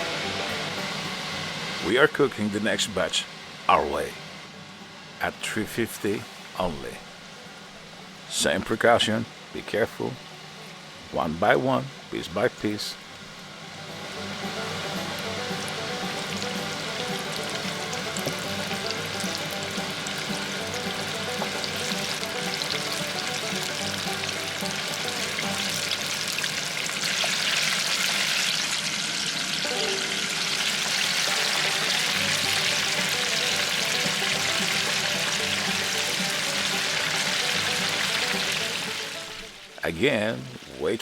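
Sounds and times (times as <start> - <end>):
background music: 0.0 - 4.2, 13.7 - 26.6, 29.6 - 40.6
chicken frying in hot oil: 13.2 - 39.8.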